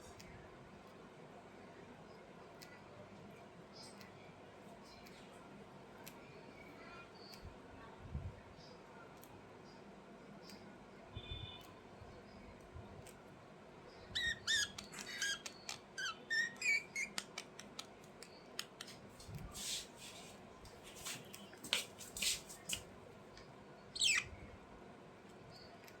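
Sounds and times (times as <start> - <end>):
budgerigars chirping: 14.1 - 17.2, 24.0 - 24.3.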